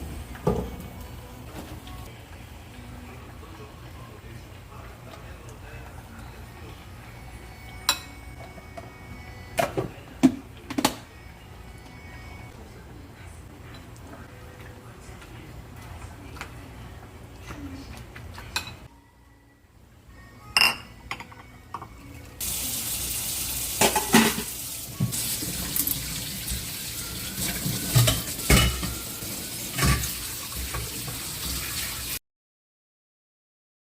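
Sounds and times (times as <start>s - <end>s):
dishes and cutlery clinking: 7.7s - 8.9s, 18.3s - 18.9s, 20.5s - 22.0s, 23.8s - 26.6s, 27.3s - 31.2s.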